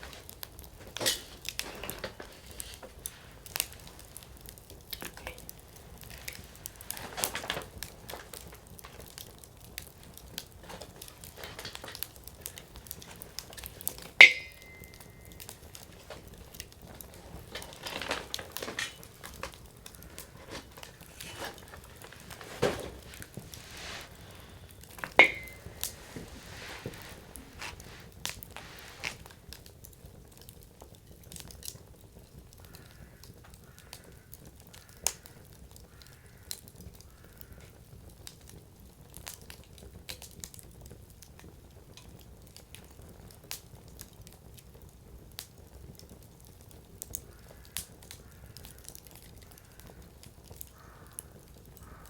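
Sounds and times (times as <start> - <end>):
sharp fire pops: 0.0 - 31.8
campfire crackling: 0.0 - 52.0.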